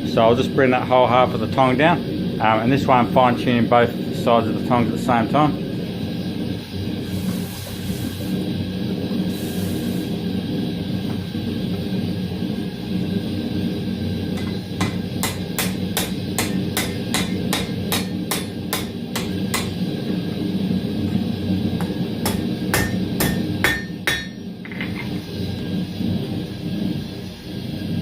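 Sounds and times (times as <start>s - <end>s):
steady low rumble: 0.0s - 28.0s
hammer striking metal on anvil: 14.4s - 19.8s, 21.8s - 24.9s
anvil ringing: 22.3s - 24.4s.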